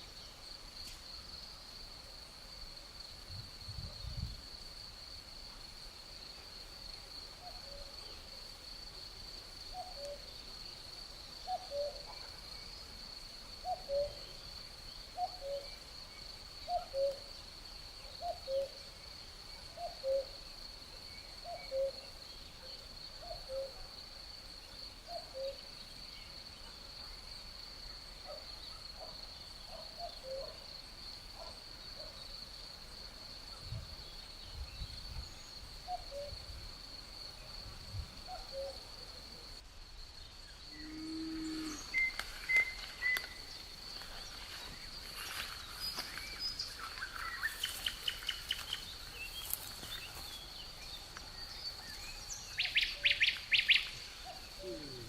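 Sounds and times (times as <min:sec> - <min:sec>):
crickets trilling: 0:00.0 - 0:55.0
cuckoo calling: 0:11.5 - 0:12.2, 0:13.6 - 0:14.3, 0:38.3 - 0:38.8, 0:40.8 - 0:43.4, 0:52.5 - 0:55.0.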